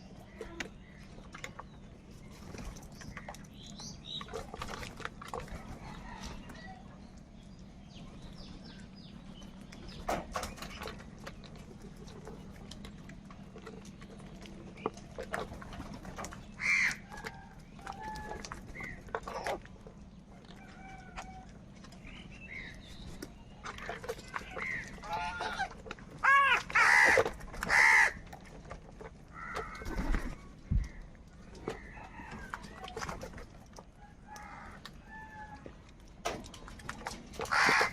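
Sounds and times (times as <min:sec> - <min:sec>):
crows cawing: 0:16.6 - 0:17.0, 0:26.2 - 0:28.2, 0:29.3 - 0:30.0, 0:37.4 - 0:37.9.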